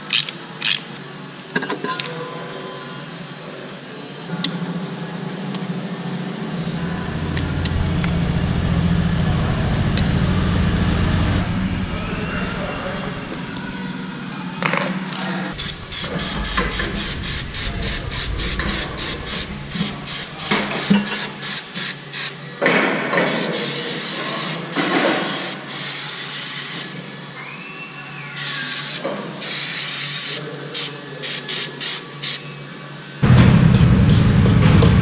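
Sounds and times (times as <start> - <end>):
falling squeal: 6.4 - 14.5, 15.5 - 21.4
stuttering mechanical bursts: 6.5 - 14.0, 15.6 - 21.6.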